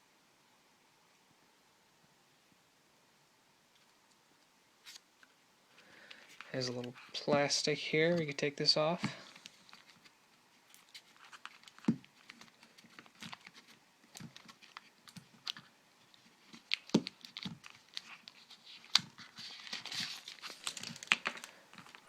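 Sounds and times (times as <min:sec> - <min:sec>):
plastic film peeling crinkles: 0:09.2 - 0:22.0.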